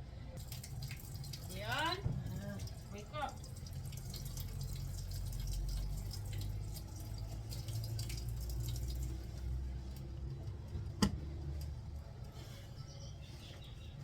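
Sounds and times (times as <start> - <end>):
water dripping in a sink: 0.4 - 10.5.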